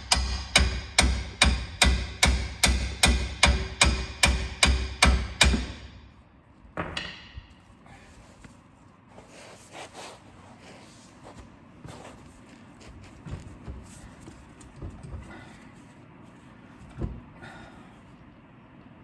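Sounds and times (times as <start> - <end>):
hammer striking metal: 0.0 - 6.1.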